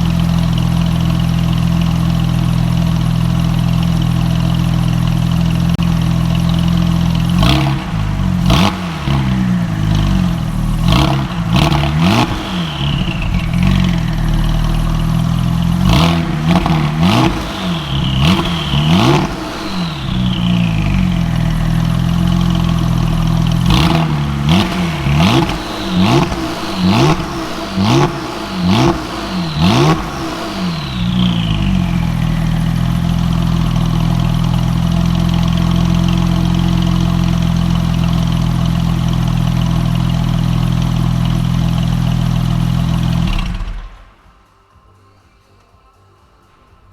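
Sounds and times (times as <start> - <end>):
car engine revving: 0.0 - 44.2
falling turbo whistle: 15.8 - 23.2, 24.6 - 32.6.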